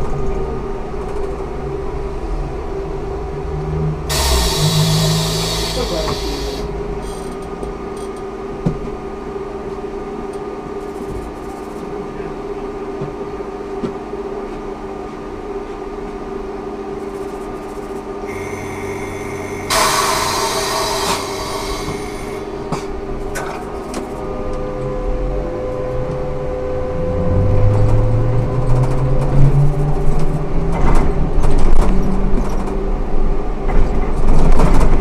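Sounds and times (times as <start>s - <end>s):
trolleybus electrical hum: 0.0s - 35.0s
high whine: 4.0s - 8.1s, 17.1s - 28.6s
loud air hiss: 4.1s - 7.2s, 18.3s - 23.2s.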